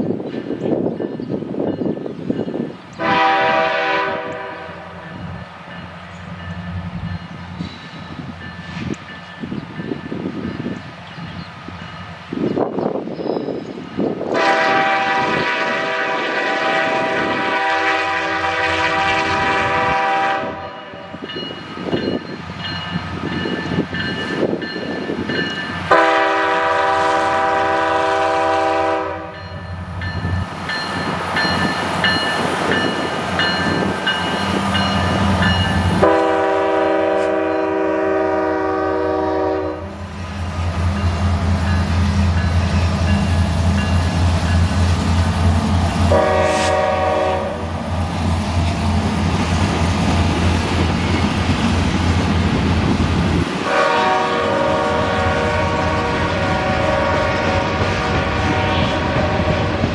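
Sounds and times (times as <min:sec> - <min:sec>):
freight train rumbling past: 0:00.0 - 0:59.9
locomotive air horn blasts: 0:03.0 - 0:05.0, 0:14.3 - 0:21.2, 0:25.9 - 0:29.4, 0:35.9 - 0:40.0, 0:46.1 - 0:47.7, 0:53.6 - 0:59.9.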